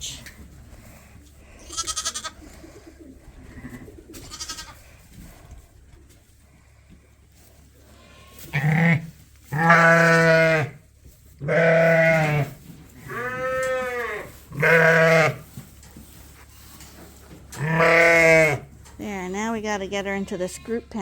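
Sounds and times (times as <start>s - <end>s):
sheep bleating: 1.6s - 2.4s, 4.2s - 4.8s, 8.0s - 10.8s, 11.4s - 12.5s, 13.1s - 15.4s, 17.6s - 18.7s.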